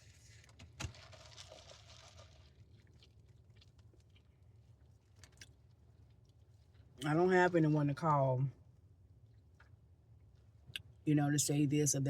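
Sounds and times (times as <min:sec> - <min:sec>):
faint chewing: 0:00.3 - 0:07.0.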